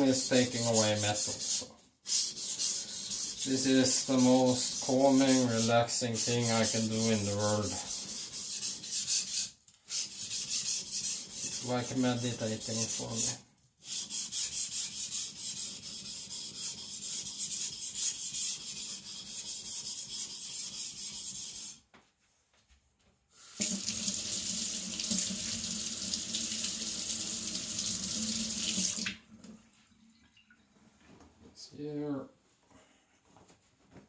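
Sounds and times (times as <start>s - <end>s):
knife grinding on whetstone: 0.2s - 13.2s
water tap running: 23.4s - 30.2s.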